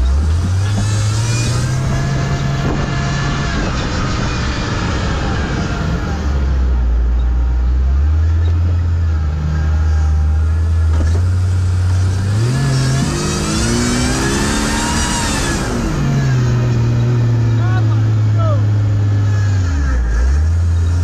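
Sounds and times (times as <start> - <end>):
race car engine running hard: 0.0 - 21.0.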